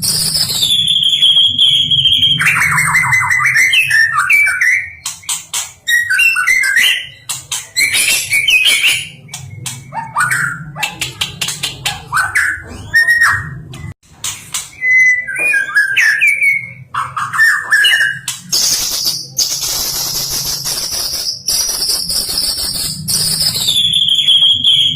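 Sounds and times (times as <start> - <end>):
bird singing whistled phrases: 0.0 - 5.0, 5.9 - 7.2, 14.7 - 24.9
bird clicking and chattering: 7.1 - 12.4.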